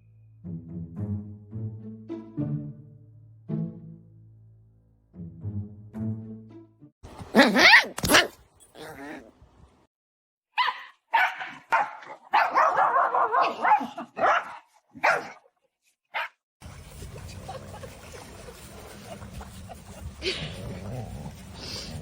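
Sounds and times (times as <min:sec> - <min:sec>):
dog barking: 0:07.4 - 0:08.4, 0:10.6 - 0:15.4, 0:16.1 - 0:16.4.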